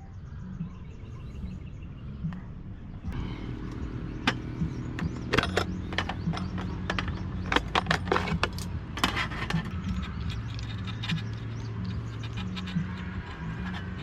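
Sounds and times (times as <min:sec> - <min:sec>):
steady low hum: 0:00.0 - 0:14.0
sharp clicks and clatters: 0:03.7 - 0:14.0.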